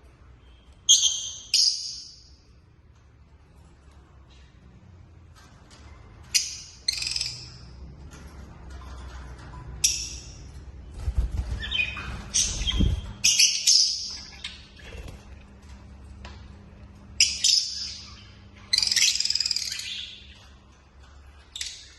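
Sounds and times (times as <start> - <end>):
lovebirds chirping and squawking: 0.4 - 2.5, 5.8 - 15.7, 17.0 - 21.9.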